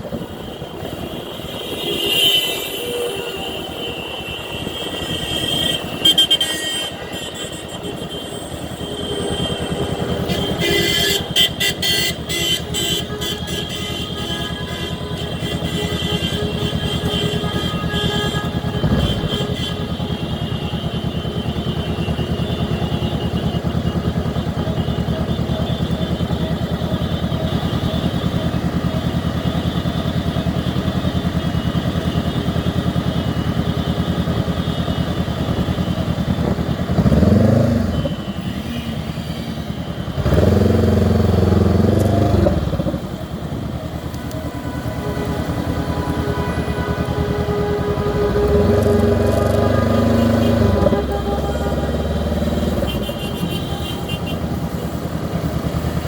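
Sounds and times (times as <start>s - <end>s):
motorcycle engine running: 0.1s - 56.0s.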